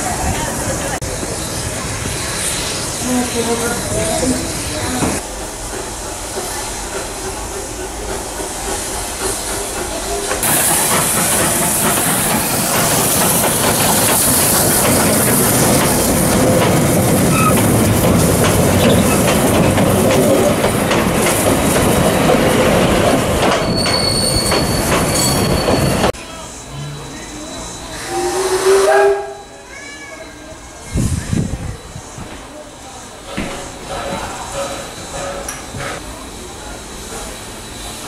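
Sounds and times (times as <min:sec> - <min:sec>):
train wheels clattering over joints: 0:05.0 - 0:26.1
high wheel squeal: 0:17.3 - 0:17.7, 0:18.8 - 0:19.3, 0:23.6 - 0:26.1.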